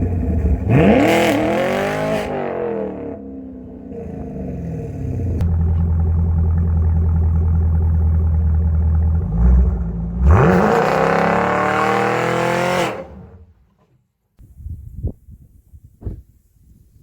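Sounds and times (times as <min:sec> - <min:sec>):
car engine revving: 0:00.0 - 0:13.6.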